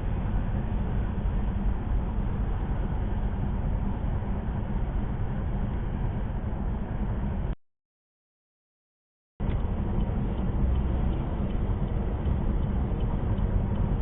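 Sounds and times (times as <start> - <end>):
car cabin road noise: 9.4 - 14.0.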